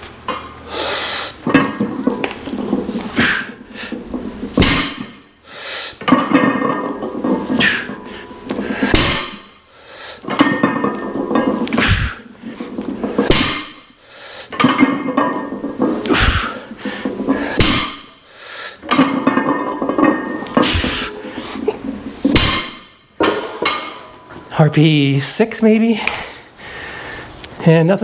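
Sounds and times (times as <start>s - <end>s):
iron plates clanking: 0.2s - 5.4s, 6.0s - 25.4s
lifter breathing hard: 11.8s - 12.3s, 14.0s - 14.6s, 18.2s - 18.9s, 26.0s - 27.4s.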